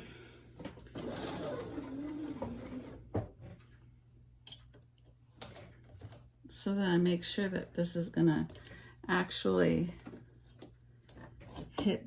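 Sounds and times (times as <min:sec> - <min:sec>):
sewing machine stitching: 0:00.9 - 0:03.0.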